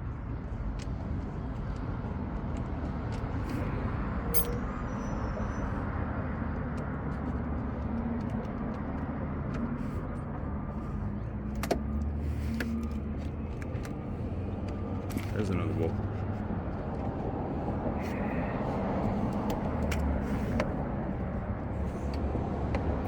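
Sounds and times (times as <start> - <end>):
metallic clicks and knocks: 4.4 - 4.6.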